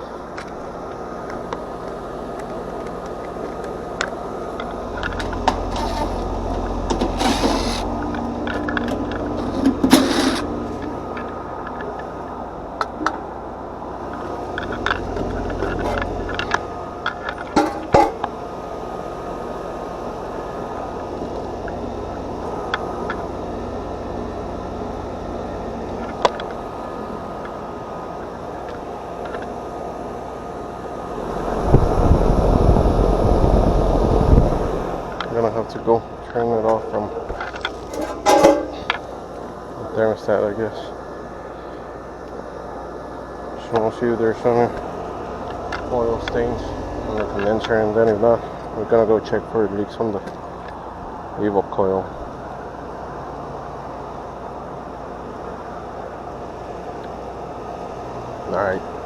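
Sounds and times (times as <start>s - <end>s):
air conditioner unit running: 0.0s - 59.0s
clicks and knocks of handling: 36.7s - 39.0s.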